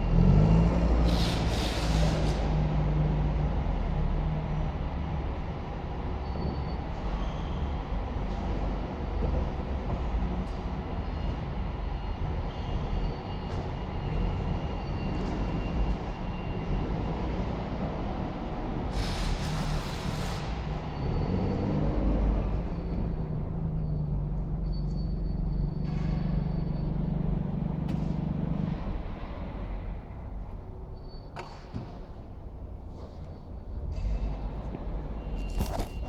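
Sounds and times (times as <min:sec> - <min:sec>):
forklift engine rumble: 0:00.0 - 0:36.0
hiss: 0:01.0 - 0:02.5, 0:18.9 - 0:20.6.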